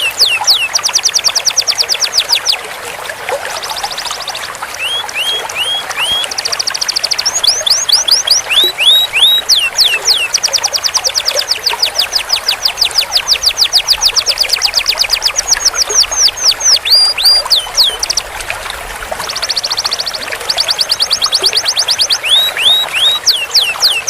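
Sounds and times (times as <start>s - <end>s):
canary trilling song: 0.0s - 2.6s, 3.6s - 18.4s, 19.2s - 24.0s.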